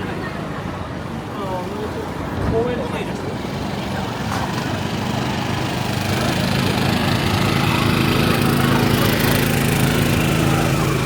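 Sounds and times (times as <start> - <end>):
street noise: 0.0 - 11.0
vehicle engine running: 3.4 - 11.0.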